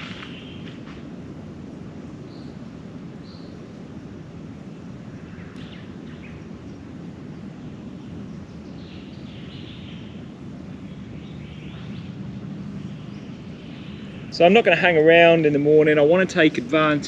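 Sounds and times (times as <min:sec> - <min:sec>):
birds chirping: 0:00.0 - 0:04.0, 0:04.6 - 0:17.0
low background rumble: 0:00.0 - 0:17.0.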